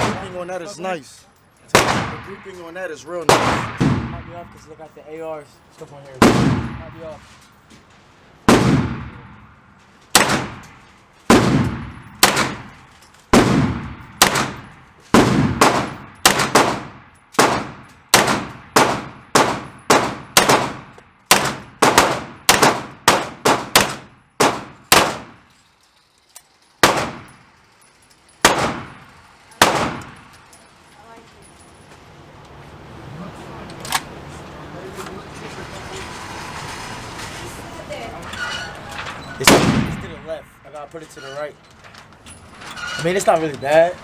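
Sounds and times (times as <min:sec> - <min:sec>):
single gunshots: 0:00.0 - 0:00.5, 0:01.7 - 0:02.5, 0:03.3 - 0:04.6, 0:06.2 - 0:07.0, 0:08.4 - 0:25.4, 0:26.8 - 0:27.4, 0:28.4 - 0:30.3, 0:39.4 - 0:40.4.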